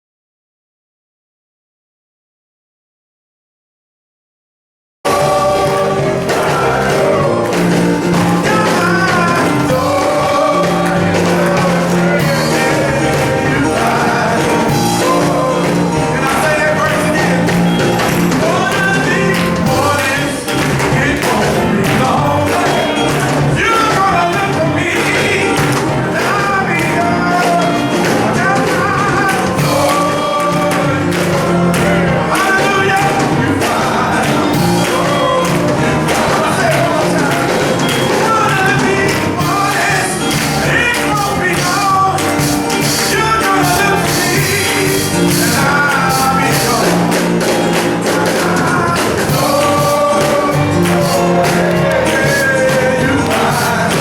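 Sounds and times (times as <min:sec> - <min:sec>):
instrumental backing with percussion: 0:05.1 - 0:54.0
male chorus singing gospel: 0:05.1 - 0:54.0.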